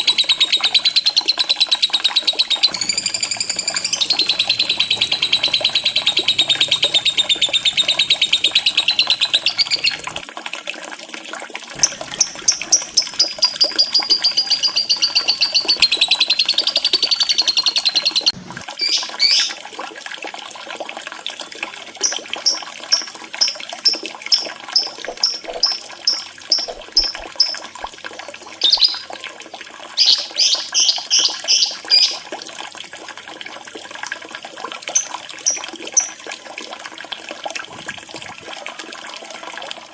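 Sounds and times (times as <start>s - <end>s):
lovebird trills and chirps: 0.0s - 10.2s, 11.8s - 19.5s, 22.0s - 27.6s, 28.6s - 29.1s, 30.0s - 32.1s
running water: 0.0s - 39.9s.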